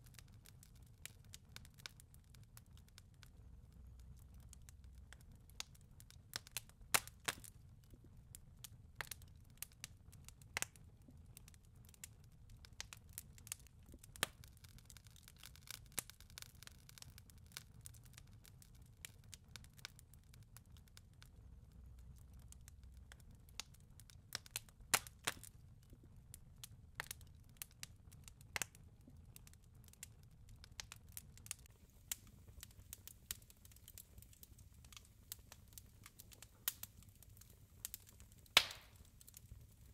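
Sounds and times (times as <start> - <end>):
wood fire crackling: 0.0 - 39.9
faint low rumble: 2.1 - 6.9.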